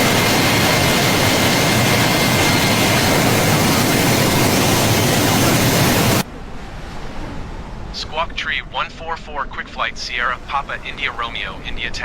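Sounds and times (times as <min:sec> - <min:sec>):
jet engine rushing: 0:00.0 - 0:06.2.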